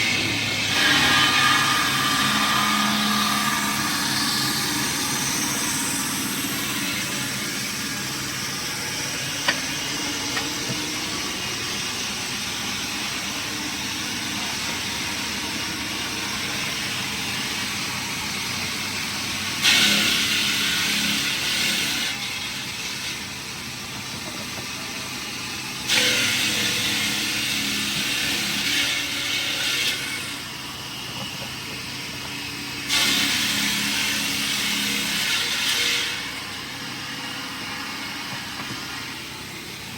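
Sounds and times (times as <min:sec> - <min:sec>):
machinery noise: 0:00.0 - 0:21.5.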